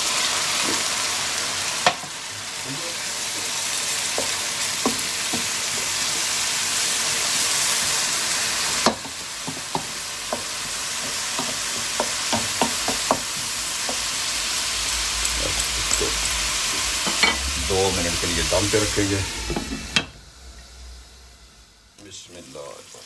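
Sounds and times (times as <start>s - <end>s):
aromatics sizzling in hot oil: 0.0s - 23.0s
wooden spatula scraping and tapping: 8.8s - 14.1s.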